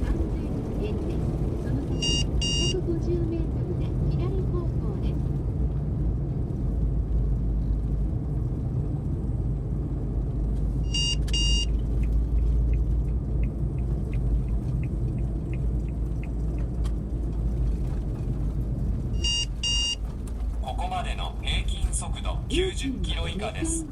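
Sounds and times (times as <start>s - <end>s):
engine and road rumble: 0.0s - 23.9s
turn signal ticking: 0.2s - 4.8s, 10.4s - 21.4s
short electronic beeps: 2.0s - 2.8s, 10.9s - 11.7s, 19.2s - 20.0s.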